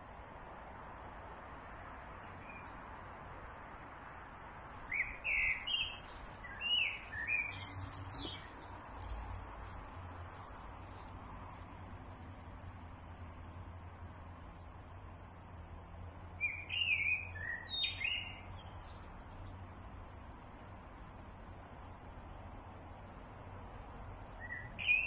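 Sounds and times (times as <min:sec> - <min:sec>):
outdoor background hiss: 0:00.0 - 0:25.0
songbird chirping: 0:02.0 - 0:20.3, 0:24.3 - 0:25.0.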